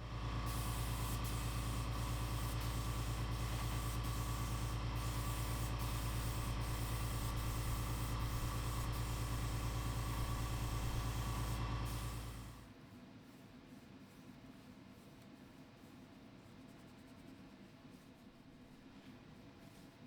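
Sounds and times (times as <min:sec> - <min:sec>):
machine humming and hissing: 0:00.0 - 0:12.6.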